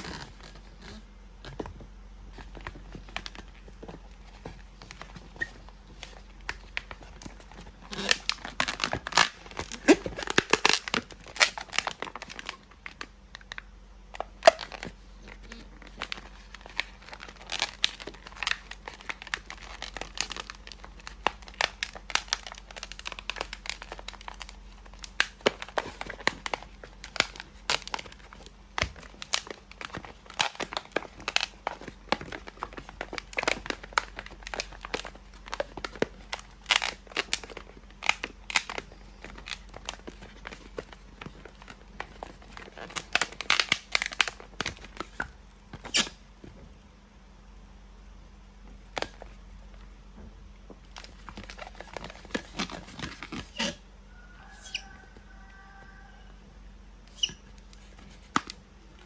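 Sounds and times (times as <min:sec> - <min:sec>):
balloon rubbing and squeaking: 0:45.8 - 0:46.2, 0:51.6 - 0:53.8, 0:54.4 - 0:55.2, 0:57.1 - 0:57.6.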